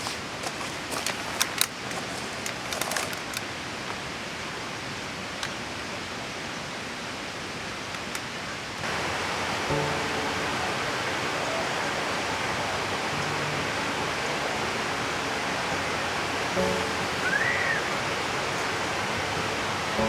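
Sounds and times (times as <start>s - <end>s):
steady rushing noise: 8.8s - 20.0s.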